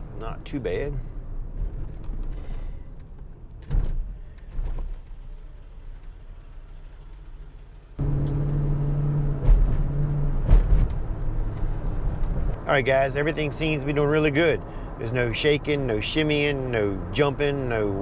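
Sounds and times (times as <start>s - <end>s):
road and engine noise: 0.0s - 18.0s.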